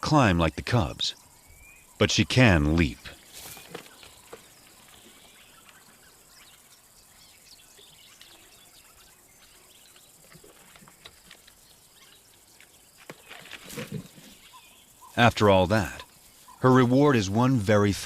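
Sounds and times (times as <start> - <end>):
low background hiss: 0.0 - 18.0
small birds chirping: 0.1 - 18.0
soft ticks and rustles: 2.8 - 15.2.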